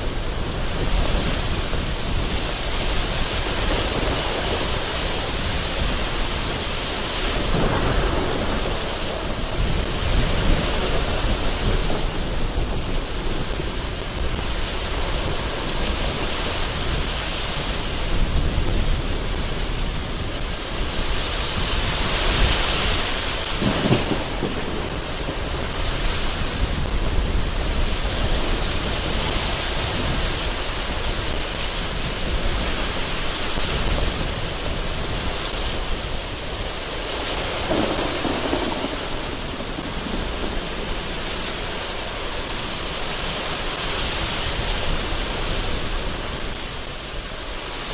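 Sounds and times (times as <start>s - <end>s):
thunder rumbling: 0.0s - 47.6s
gusting wind: 0.0s - 47.9s
heavy rain on window: 0.0s - 47.9s.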